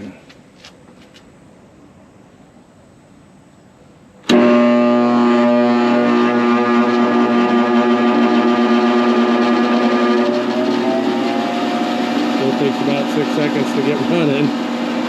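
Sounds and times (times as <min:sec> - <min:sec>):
magnetic starter click: 0:04.2 - 0:05.0
electric motor humming: 0:04.3 - 0:15.0.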